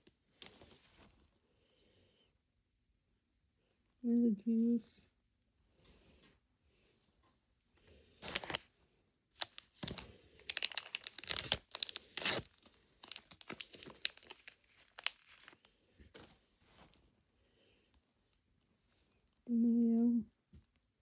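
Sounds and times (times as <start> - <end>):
plastic wrapper tearing and crinkling: 8.2 - 8.7, 9.4 - 15.6.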